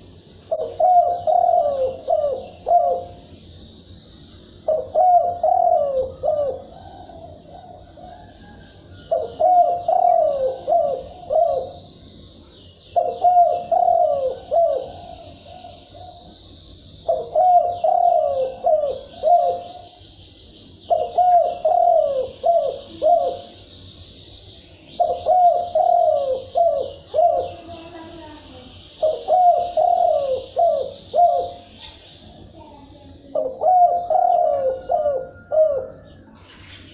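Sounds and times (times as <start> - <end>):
dove cooing: 0.0 - 3.3, 4.6 - 11.9, 12.9 - 16.4, 17.0 - 20.0, 20.9 - 23.6, 24.9 - 28.2, 28.9 - 32.0, 33.2 - 36.5
faint high chirping: 0.0 - 36.9.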